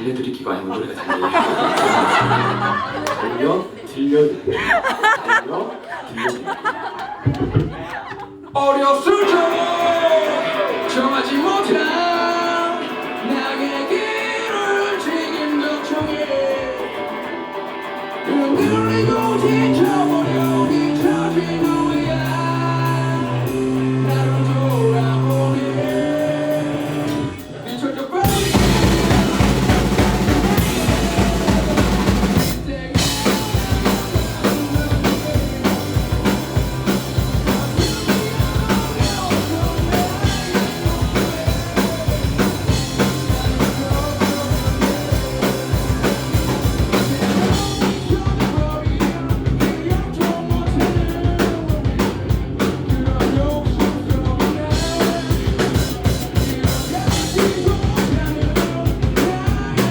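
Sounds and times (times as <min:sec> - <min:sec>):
punk rock band playing live: 0:01.3 - 0:03.3, 0:09.1 - 0:59.9
drum kit fast beat: 0:18.5 - 0:27.6, 0:28.2 - 0:59.9.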